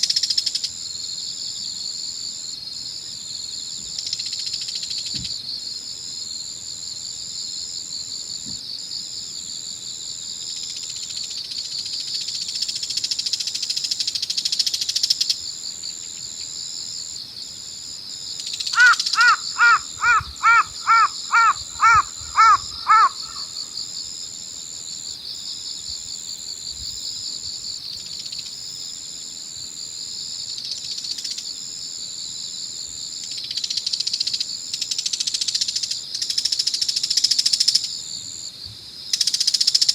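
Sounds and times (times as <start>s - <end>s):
crickets and insects chirping: 0.0s - 39.9s
crow cawing: 18.7s - 23.8s.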